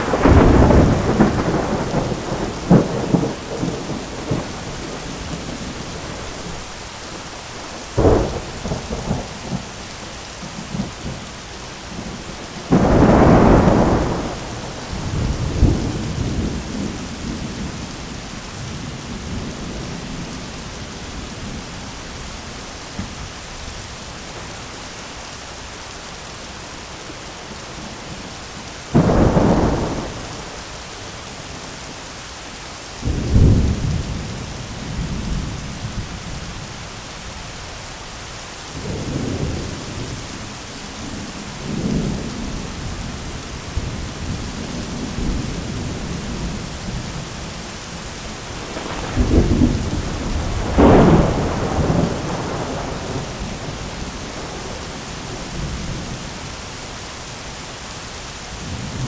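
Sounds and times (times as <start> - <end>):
thunder cracking and rumbling: 0.0 - 6.7, 7.6 - 9.8, 11.9 - 20.4, 28.9 - 30.7, 33.0 - 36.7, 38.8 - 56.4
heavy rain hissing: 0.0 - 59.0.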